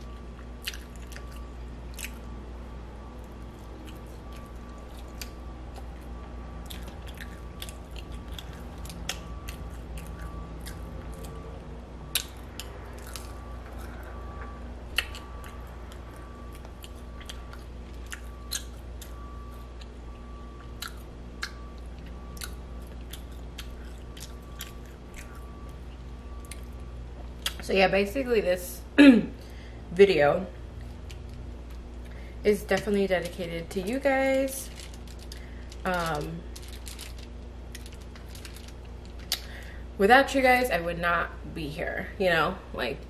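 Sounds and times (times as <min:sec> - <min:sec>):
person chewing food: 0:00.0 - 0:02.3, 0:03.2 - 0:27.6
faint steady hum: 0:00.0 - 0:43.0.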